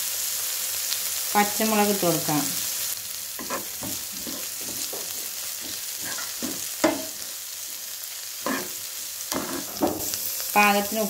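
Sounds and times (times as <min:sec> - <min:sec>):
vegetables sizzling in hot oil: 0:00.0 - 0:11.0
spoon scraping and knocking pan: 0:03.4 - 0:07.3, 0:08.4 - 0:10.2.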